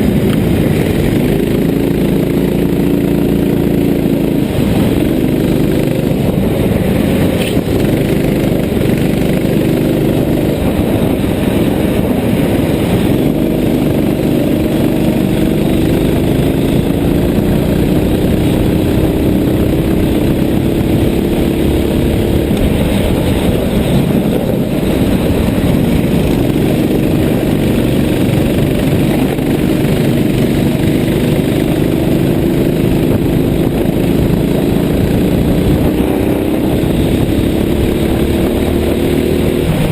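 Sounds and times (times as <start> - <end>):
racing kart engine revving: 0.0 - 39.9.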